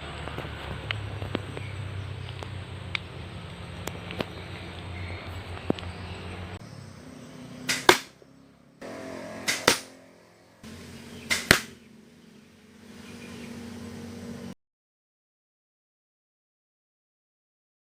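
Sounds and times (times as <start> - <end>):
crossbow shot double crack: 7.6 - 8.2, 8.8 - 10.3, 11.2 - 11.8.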